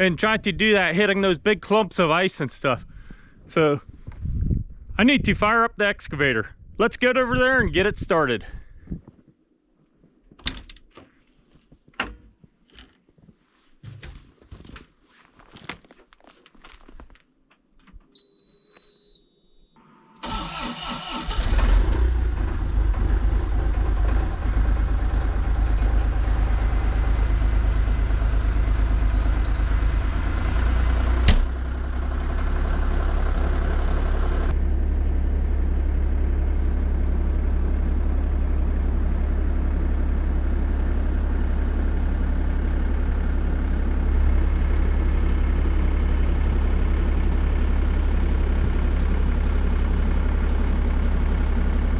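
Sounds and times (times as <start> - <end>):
short electronic beep: 18.2 - 19.3, 29.1 - 29.6
diesel engine cranking and idling: 20.2 - 51.9.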